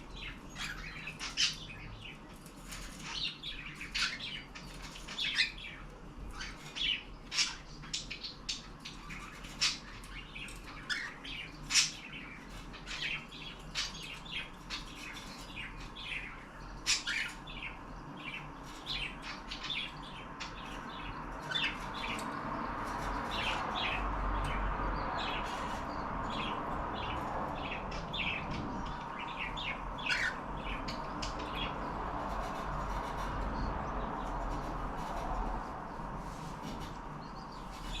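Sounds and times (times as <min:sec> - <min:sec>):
cockatiels chirping and squawking: 0:00.1 - 0:38.0
steady rushing noise: 0:21.6 - 0:38.0.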